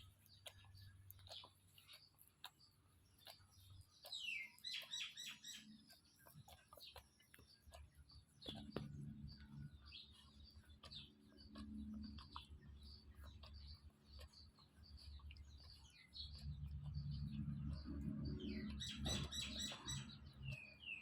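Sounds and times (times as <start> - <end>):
small animal chirping and squeaking: 0.0 - 21.0
low hum: 15.4 - 20.7.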